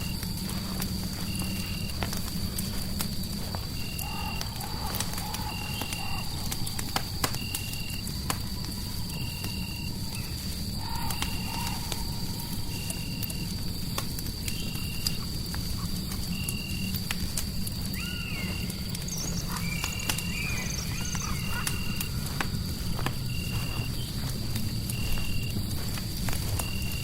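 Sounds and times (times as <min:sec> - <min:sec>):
fire crackling: 0:00.0 - 0:27.0
insect chirping: 0:00.0 - 0:27.0
wavering animal-like calls: 0:17.9 - 0:22.4.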